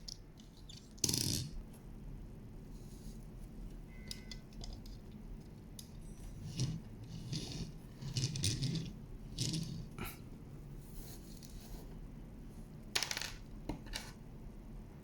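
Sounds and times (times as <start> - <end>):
metal toy clinking and scraping: 5.9 - 9.9.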